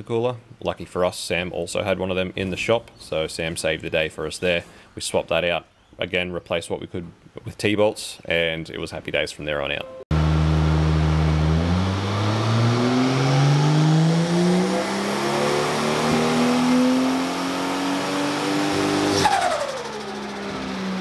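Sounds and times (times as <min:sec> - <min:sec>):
car engine revving on a dyno: 0:10.1 - 0:21.0
falling turbo whine: 0:10.1 - 0:21.0.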